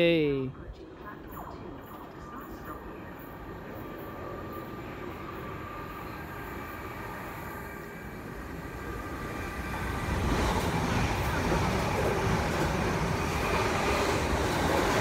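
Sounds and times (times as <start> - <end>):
train rail rumble: 1.8 - 15.0.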